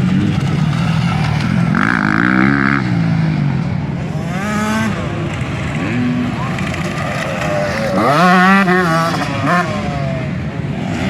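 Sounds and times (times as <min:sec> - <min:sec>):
motocross bike engines revving: 0:00.0 - 0:11.0
high whine: 0:00.6 - 0:03.1.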